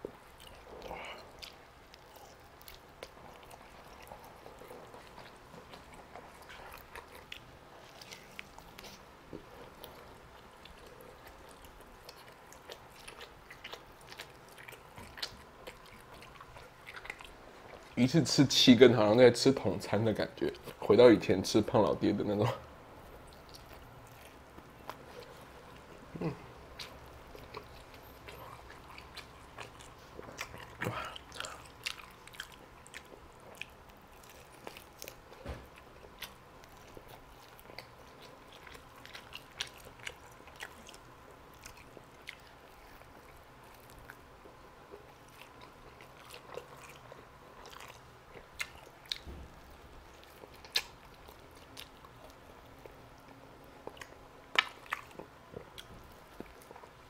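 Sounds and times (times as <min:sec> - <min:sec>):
chewing mouth clicks and smacks: 0:00.1 - 0:18.0, 0:22.4 - 0:57.0.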